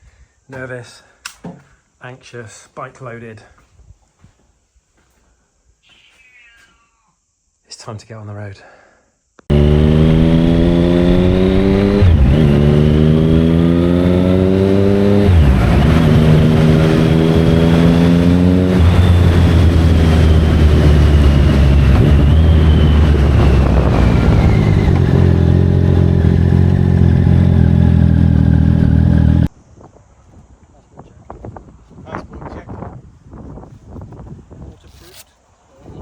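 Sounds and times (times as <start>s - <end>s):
motorcycle engine accelerating: 9.5s - 29.5s.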